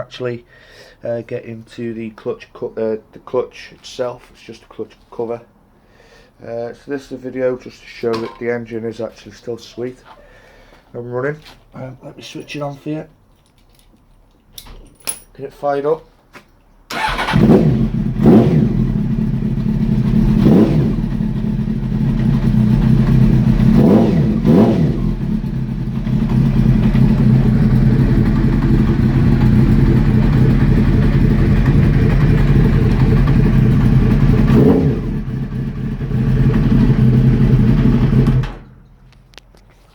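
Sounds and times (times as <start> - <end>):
motorcycle engine revving and idling: 17.0 - 38.8.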